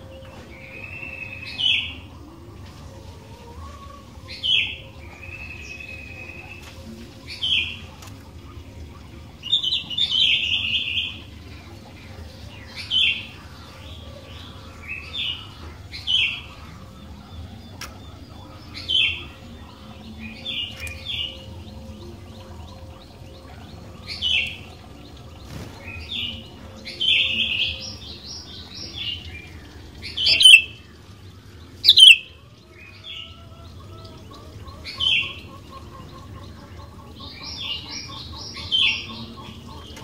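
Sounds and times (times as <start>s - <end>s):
bird chirping: 26.0s - 30.8s, 31.7s - 32.4s.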